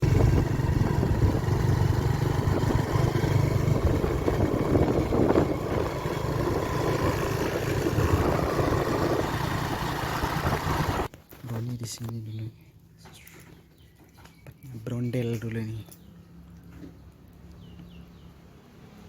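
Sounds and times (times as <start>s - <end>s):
road noise hiss: 0.0s - 11.1s
vehicle engine rumble: 0.0s - 11.1s.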